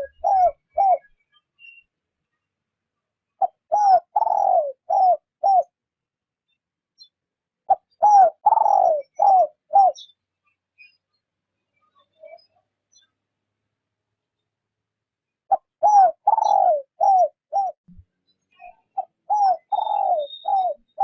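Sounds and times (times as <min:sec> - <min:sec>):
dove cooing: 0:00.0 - 0:01.1, 0:03.4 - 0:05.7, 0:07.7 - 0:10.1, 0:15.5 - 0:17.8, 0:19.0 - 0:21.0.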